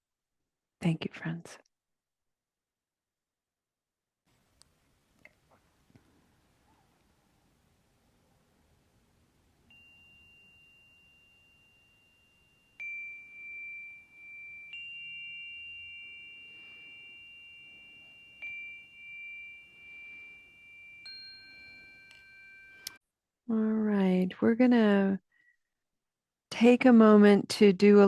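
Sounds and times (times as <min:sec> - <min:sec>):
meditation bells ringing: 0:09.6 - 0:23.0.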